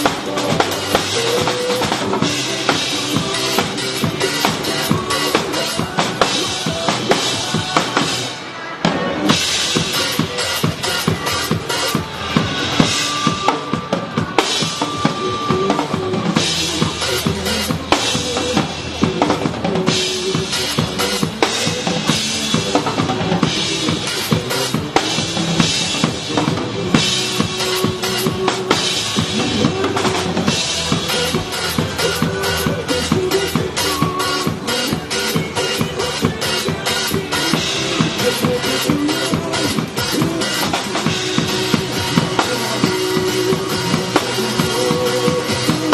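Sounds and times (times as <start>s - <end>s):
backing track music: 0.0s - 45.9s
bass drum and snare beat: 9.3s - 45.9s.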